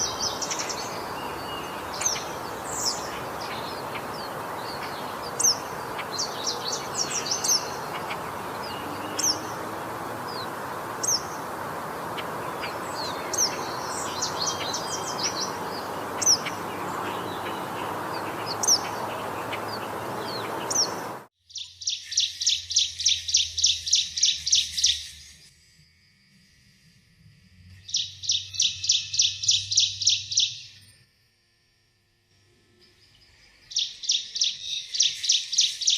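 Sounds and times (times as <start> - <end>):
background hiss: 0.0 - 21.3
high bird chirps: 0.0 - 24.7.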